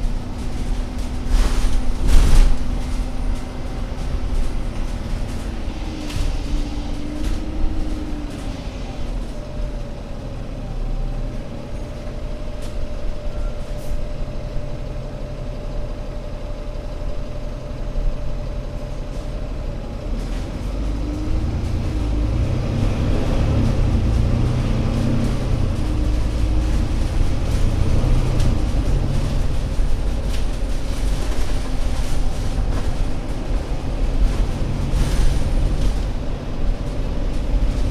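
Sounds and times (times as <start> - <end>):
bus diesel engine rumbling: 0.0 - 37.9.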